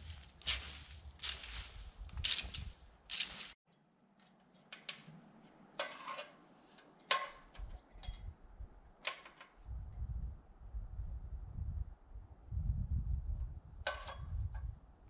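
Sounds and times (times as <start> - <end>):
crunching footsteps: 0.0 - 3.6.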